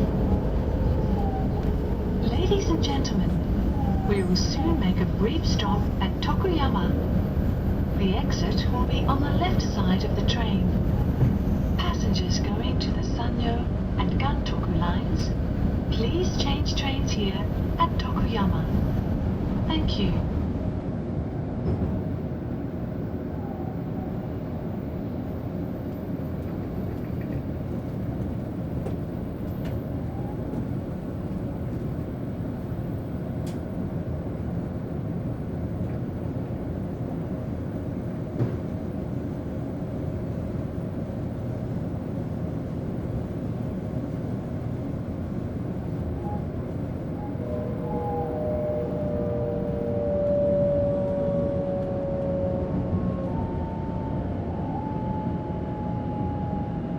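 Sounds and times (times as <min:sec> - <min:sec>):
tonal whine: 0:00.0 - 0:20.6, 0:44.3 - 0:56.9
train wheels and air rumbling: 0:00.0 - 0:56.9.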